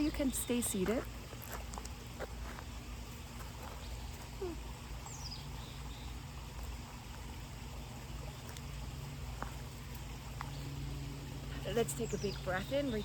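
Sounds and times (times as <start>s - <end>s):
steady low hum: 0.0s - 13.0s
faint bird chirp: 3.6s - 6.7s.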